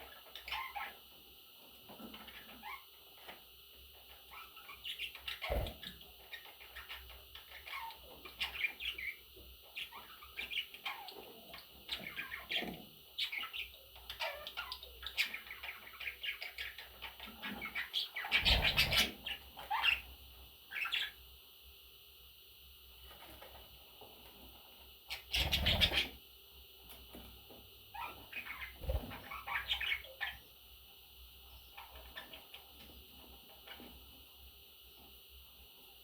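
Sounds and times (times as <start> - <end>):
budgerigars chirping and chattering: 0.0 - 1.1, 1.9 - 21.2, 25.1 - 26.2, 27.9 - 30.6, 31.4 - 33.9.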